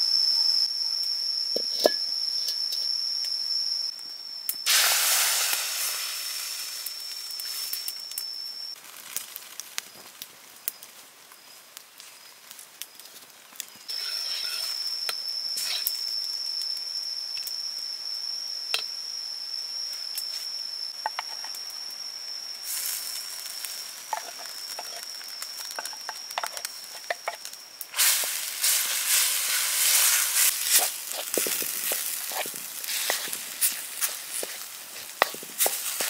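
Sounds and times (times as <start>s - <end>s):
curry paste sizzling in a wok: 4.5s - 13.0s, 13.6s - 36.0s
steady high whine: 13.9s - 36.0s
wooden spatula scraping wok: 24.2s - 25.0s, 28.0s - 36.0s.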